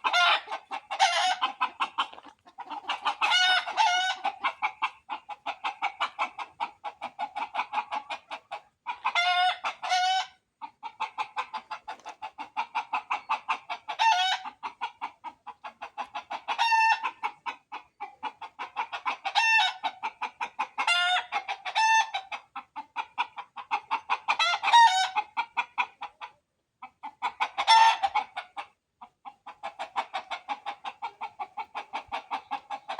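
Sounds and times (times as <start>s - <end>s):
loud pitched chicken call: 0.0s - 17.3s, 24.3s - 25.2s, 27.5s - 28.3s
chickens clucking: 0.0s - 32.9s.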